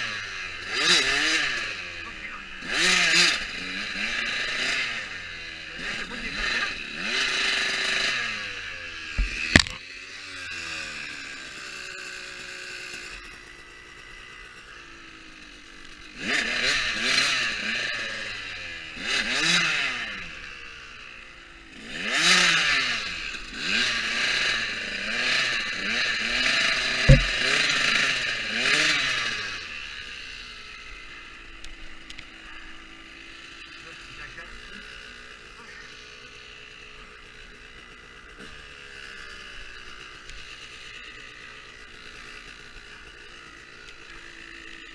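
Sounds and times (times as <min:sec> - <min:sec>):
dirt bike engine revving: 0:00.0 - 0:44.9
sharp knock: 0:27.1 - 0:27.4.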